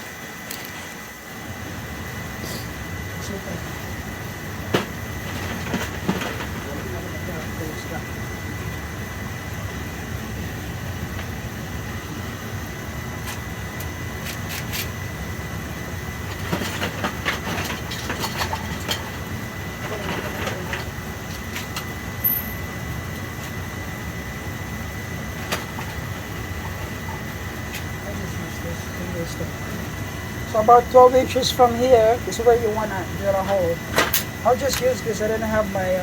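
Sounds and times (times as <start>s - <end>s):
boiler burner rumbling: 0.0s - 36.0s
thin steady high tone: 21.8s - 36.0s.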